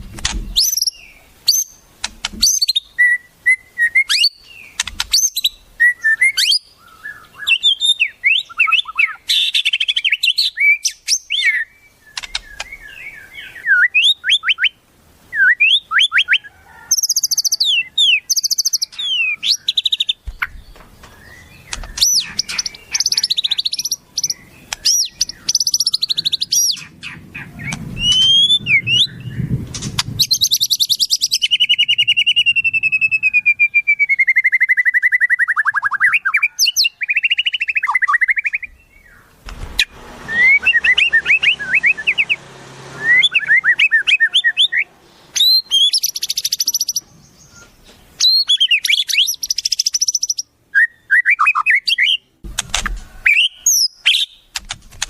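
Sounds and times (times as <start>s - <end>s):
songbird singing: 0.0s - 54.6s.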